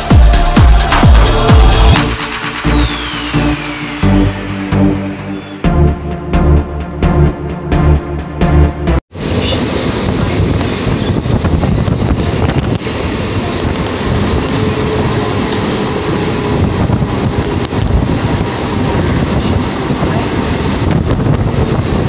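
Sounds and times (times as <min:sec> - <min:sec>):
rushing air: 0:00.0 - 0:06.2
train wheels rumbling on rails: 0:09.2 - 0:22.0.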